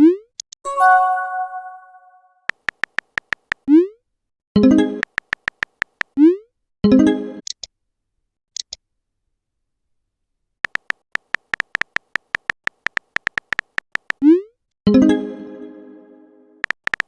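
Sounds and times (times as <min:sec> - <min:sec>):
notification chime: 0:00.7 - 0:02.3
phone keyboard clicks: 0:02.5 - 0:03.7, 0:05.0 - 0:06.2, 0:10.6 - 0:14.2, 0:16.6 - 0:17.0.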